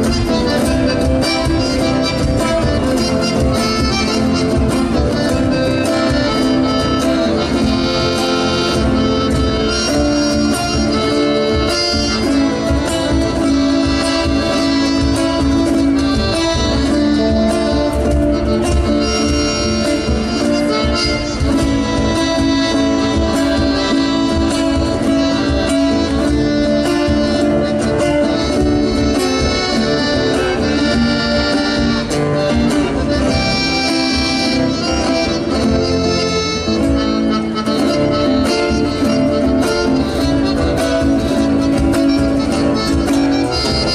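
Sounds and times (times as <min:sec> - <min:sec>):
accordion folk music: 0:00.0 - 0:43.9
guitar accompaniment: 0:00.0 - 0:43.9.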